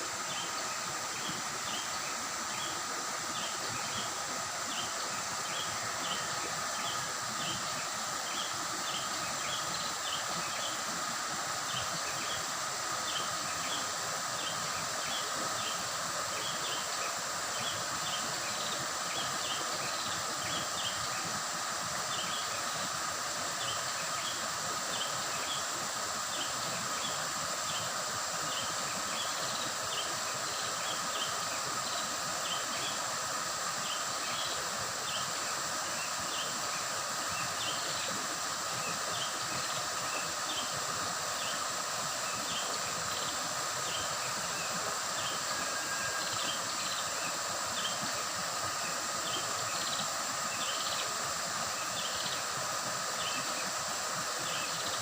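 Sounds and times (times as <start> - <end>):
river water babbling: 0.0 - 55.0.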